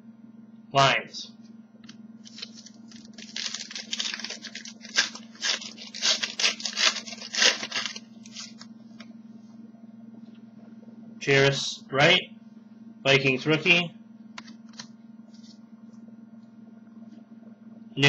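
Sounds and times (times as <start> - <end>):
foil wrapper crinkling and tearing: 2.2 - 8.7.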